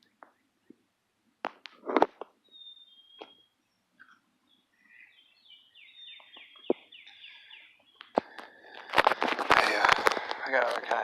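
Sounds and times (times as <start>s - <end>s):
bird whistling calls: 2.4s - 3.6s, 4.8s - 8.0s.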